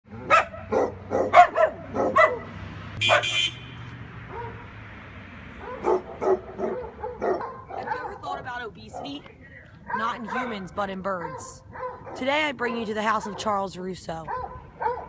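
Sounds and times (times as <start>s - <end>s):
dog yelping: 0.2s - 2.5s, 5.6s - 9.2s, 9.9s - 10.6s, 11.2s - 12.2s, 14.3s - 15.0s
dog barking: 0.2s - 3.4s, 4.3s - 4.7s, 5.6s - 9.2s, 9.8s - 10.6s, 11.2s - 12.3s, 14.2s - 15.0s.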